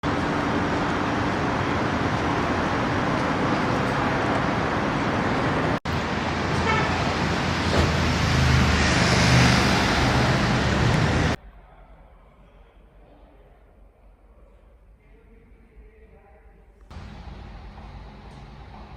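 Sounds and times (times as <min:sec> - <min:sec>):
city street traffic: 0:00.0 - 0:11.4, 0:16.9 - 0:18.9
car passing close by: 0:07.2 - 0:11.4.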